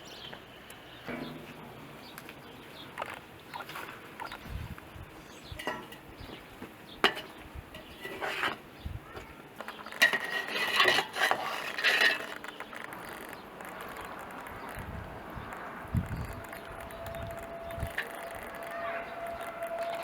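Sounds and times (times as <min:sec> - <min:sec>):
sharp knocks and clinks: 0:05.5 - 0:06.1
scraping and rubbing: 0:07.0 - 0:20.0.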